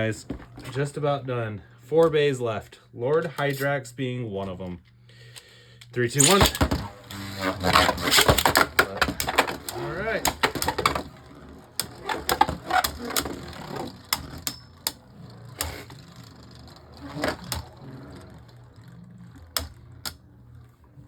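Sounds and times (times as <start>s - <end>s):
spinning tops low whir: 5.9s - 21.0s
spinning tops clashing with clicks: 6.2s - 20.3s.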